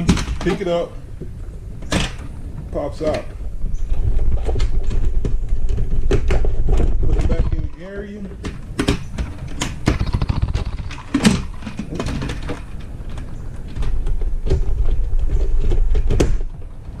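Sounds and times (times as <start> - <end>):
low rumble: 0.7 - 8.4.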